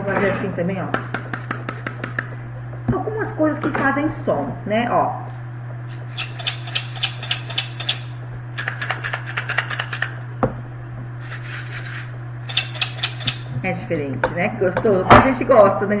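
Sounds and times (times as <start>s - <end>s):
metal utensils clinking: 5.9s - 8.2s, 11.2s - 13.6s.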